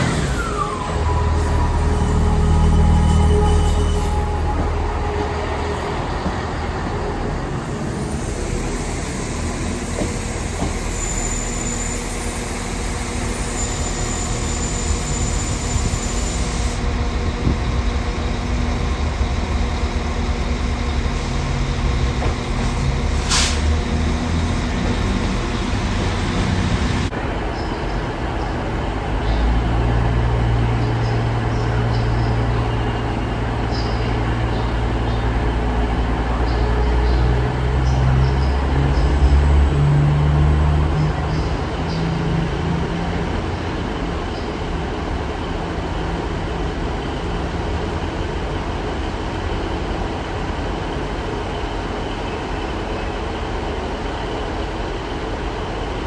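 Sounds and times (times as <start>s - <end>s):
train engines droning: 0.0s - 56.0s
short sharp hiss: 23.2s - 23.7s.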